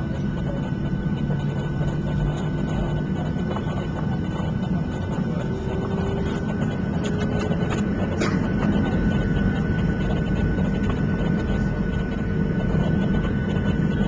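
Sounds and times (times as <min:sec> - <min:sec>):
airplane cabin low rumble: 0:00.0 - 0:14.0.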